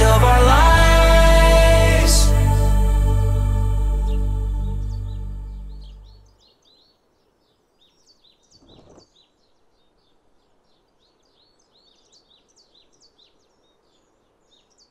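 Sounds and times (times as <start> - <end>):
music: 0.0 - 6.2
birds chirping: 3.1 - 14.9.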